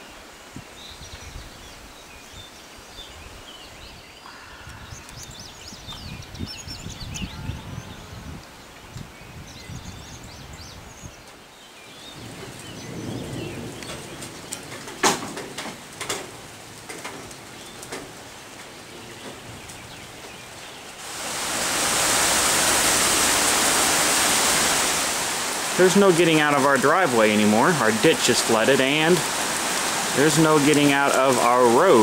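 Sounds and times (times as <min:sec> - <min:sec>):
heavy downpour hiss: 0:07.6 - 0:32.0
rain falling: 0:11.2 - 0:32.0.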